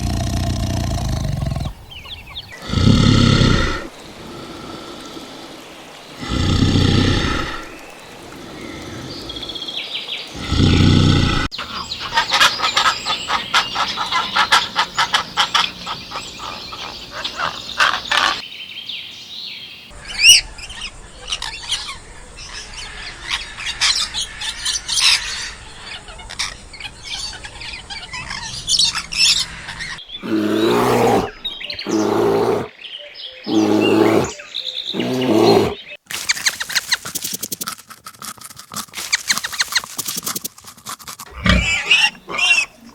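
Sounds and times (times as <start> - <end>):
loud animal calls: 0.0 - 5.6, 6.2 - 9.7, 10.3 - 18.4, 23.3 - 32.7, 33.5 - 37.5, 39.0 - 40.4, 41.2 - 42.9
loud low animal calls: 0.0 - 18.4, 23.2 - 32.7, 33.5 - 37.2, 41.2 - 42.9
birds chirping rapidly: 0.0 - 37.6, 39.0 - 42.9.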